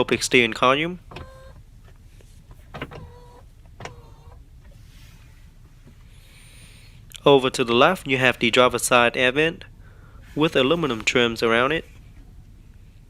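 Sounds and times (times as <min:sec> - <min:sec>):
steering column motor whining: 0:00.2 - 0:01.6, 0:02.5 - 0:04.4.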